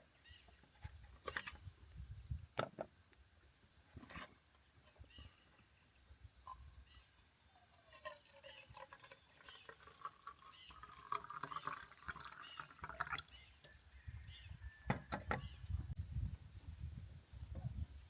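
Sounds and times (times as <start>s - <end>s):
liquid pouring and dripping: 7.2s - 13.8s.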